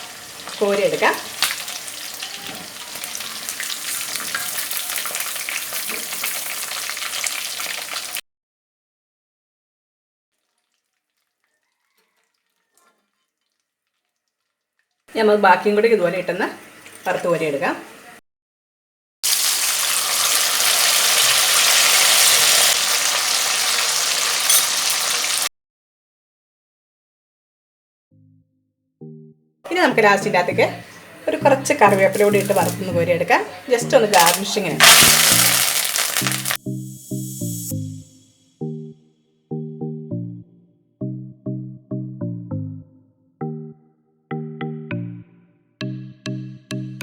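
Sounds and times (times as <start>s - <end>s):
chicken deep-frying in oil: 0.0s - 8.2s, 10.4s - 18.2s, 19.2s - 25.5s, 31.2s - 37.7s.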